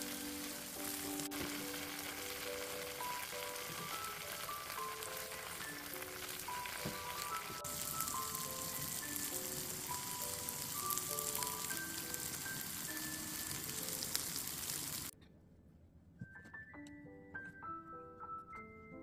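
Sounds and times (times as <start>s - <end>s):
tofu sizzling in hot oil: 0.0s - 15.1s
background music melody: 0.0s - 19.0s.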